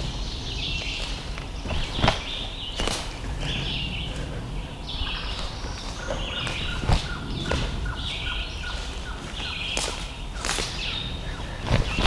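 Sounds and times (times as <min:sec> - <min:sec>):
short bird chips: 0:04.9 - 0:12.0.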